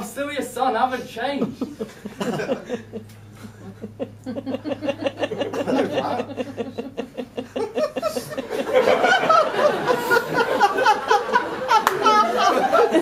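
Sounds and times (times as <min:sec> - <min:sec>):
faint steady low hum: 0:00.0 - 0:13.0
person chuckling: 0:01.6 - 0:08.6.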